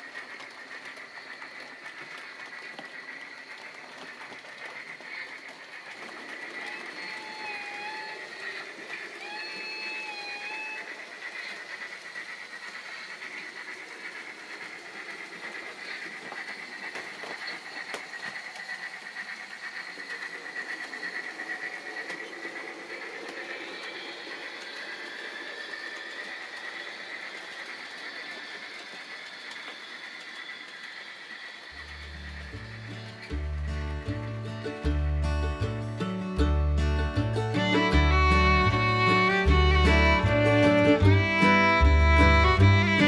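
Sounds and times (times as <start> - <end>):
model train motor whine: 4.6 - 18.7, 19.3 - 33.7.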